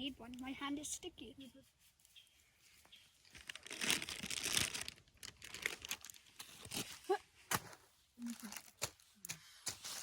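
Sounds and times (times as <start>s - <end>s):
plastic packet crinkling: 3.3s - 6.8s.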